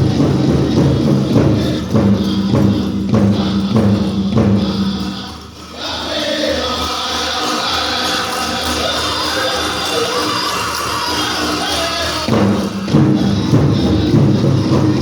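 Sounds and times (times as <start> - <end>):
big drum beating: 0.0 - 5.8, 12.0 - 15.0
group singing: 0.0 - 15.0
high wavering lead voice: 7.6 - 15.0.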